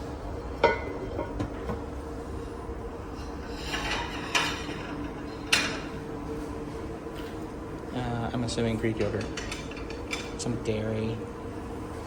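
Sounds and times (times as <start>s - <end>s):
steady low hum: 0.0s - 12.0s
dishes and cutlery clinking: 3.2s - 6.0s, 8.8s - 10.6s.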